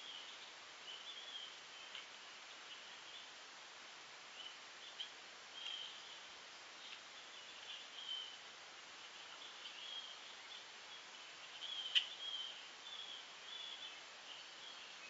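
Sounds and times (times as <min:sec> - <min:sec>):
steady hiss: 0:00.0 - 0:15.0
bird chirps: 0:04.4 - 0:06.2, 0:06.8 - 0:08.4, 0:09.3 - 0:15.0.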